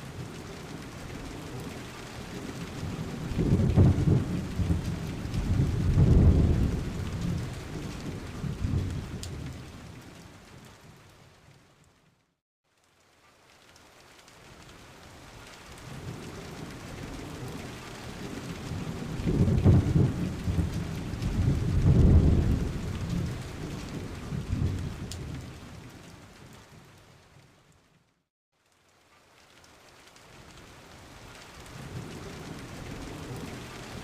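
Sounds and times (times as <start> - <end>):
rain falling: 0.0 - 34.0
rolling thunder: 2.4 - 9.8, 16.0 - 25.5.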